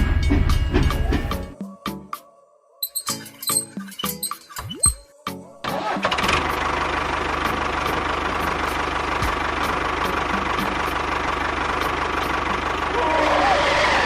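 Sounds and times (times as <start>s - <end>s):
tractor engine idling: 5.8s - 14.0s.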